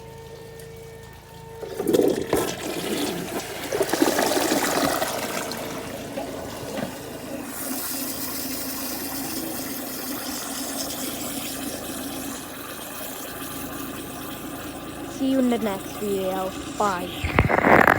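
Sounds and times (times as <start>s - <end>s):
toilet flushing: 0.0s - 17.9s
toilet tank refilling: 0.0s - 17.9s.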